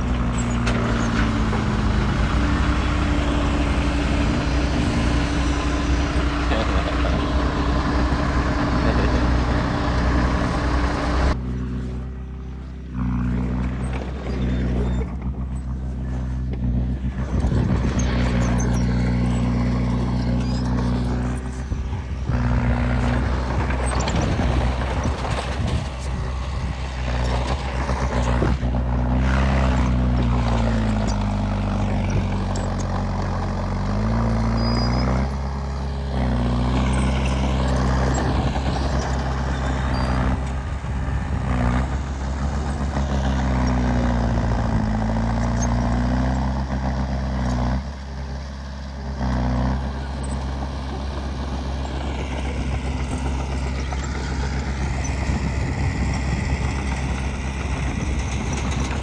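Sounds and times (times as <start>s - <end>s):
heavy diesel engine revving: 0.0s - 59.0s.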